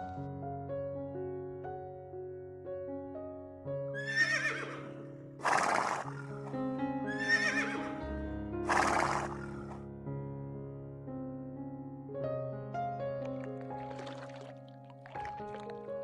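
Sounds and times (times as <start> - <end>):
horse whinnying: 4.0 - 8.0, 8.7 - 9.8
background music: 4.0 - 10.4.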